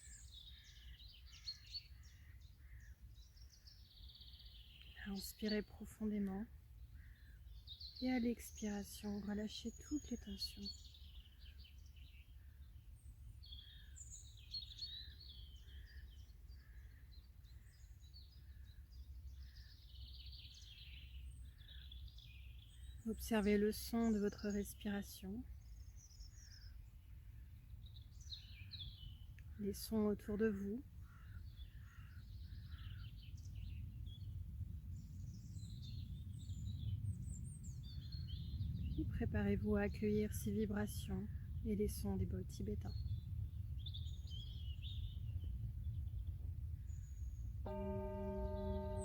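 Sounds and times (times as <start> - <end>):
birds trilling and chirping: 0.0 - 49.0
low steady rumble: 25.3 - 49.0
soft repeated bird note: 47.6 - 49.0.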